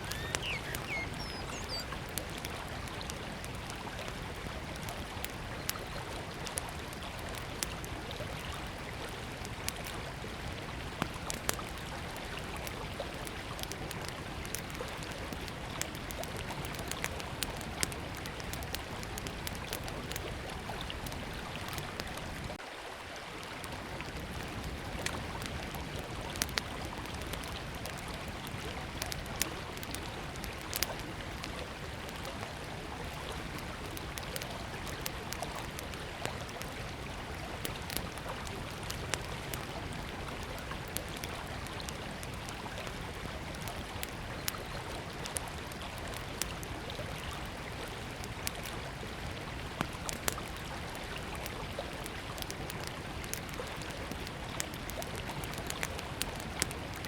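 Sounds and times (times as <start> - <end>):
river flowing: 0.0 - 15.4
campfire crackling and popping: 0.0 - 22.6, 24.1 - 57.0.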